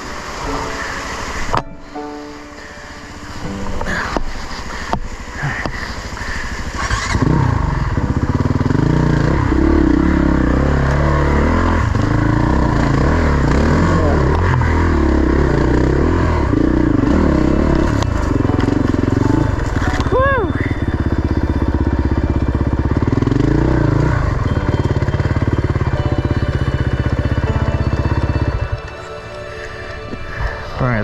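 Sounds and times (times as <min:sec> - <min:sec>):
dirt bike engine revving: 0:06.0 - 0:28.6.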